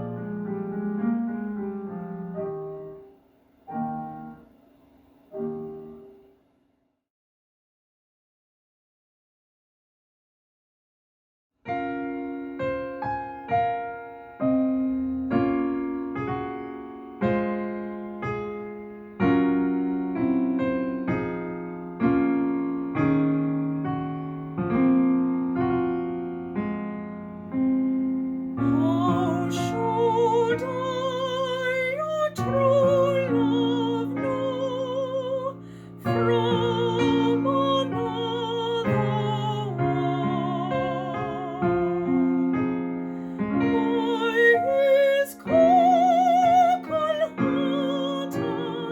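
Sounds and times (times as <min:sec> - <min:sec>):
piano chords: 0:00.0 - 0:06.3, 0:11.7 - 0:48.9
classical singing voice: 0:28.6 - 0:48.9.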